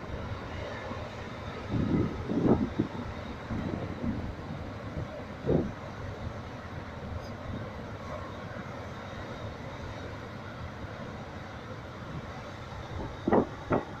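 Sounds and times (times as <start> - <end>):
heavy surf rumbling: 11.8 - 14.0.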